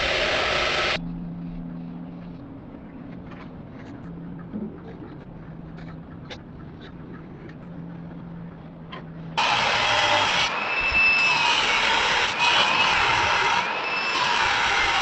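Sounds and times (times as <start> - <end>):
power grinder cutting steel: 0.0 - 1.0, 9.4 - 15.0
low hum: 0.0 - 9.8.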